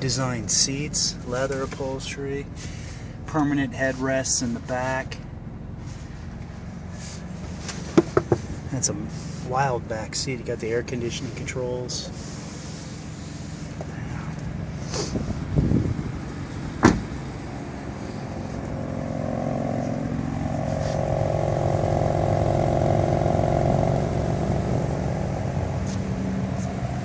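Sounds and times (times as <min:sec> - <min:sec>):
car engine running: 0:00.0 - 0:27.0
dull knock: 0:08.0 - 0:08.4.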